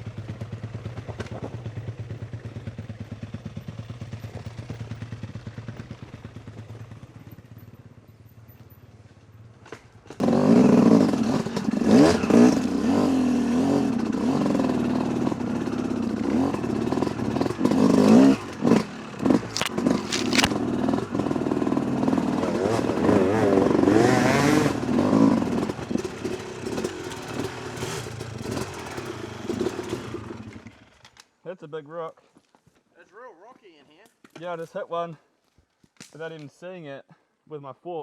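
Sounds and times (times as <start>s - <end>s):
dirt bike engine revving: 10.2s - 30.7s
bike clattering on rocks: 19.2s - 20.6s.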